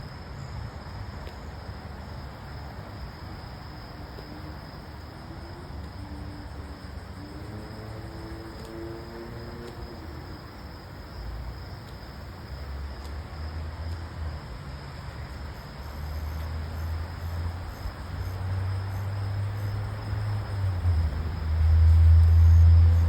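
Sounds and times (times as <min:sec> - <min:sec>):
high insect chirps: 0:15.5 - 0:23.0.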